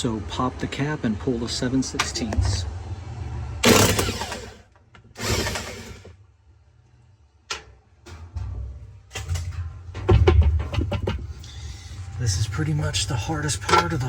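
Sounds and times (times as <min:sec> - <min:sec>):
power driver running: 0:03.6 - 0:06.2.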